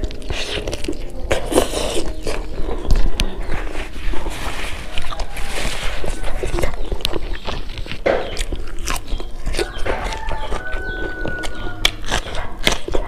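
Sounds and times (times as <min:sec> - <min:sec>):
biting and chewing food: 0:00.0 - 0:13.0
sharp mouth clicks: 0:06.4 - 0:10.4
wet mouth smacks: 0:06.4 - 0:10.6.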